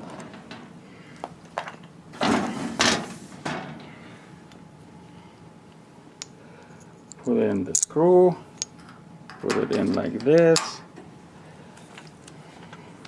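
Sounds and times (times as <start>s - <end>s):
metal parts knocking and scraping: 7.0s - 8.0s, 8.6s - 10.8s.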